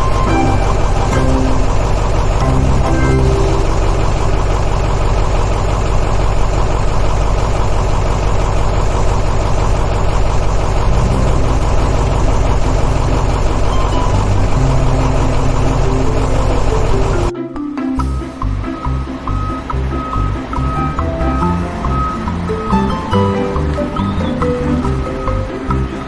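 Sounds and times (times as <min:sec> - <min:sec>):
short musical notes: 0:00.0 - 0:05.6, 0:10.9 - 0:26.0.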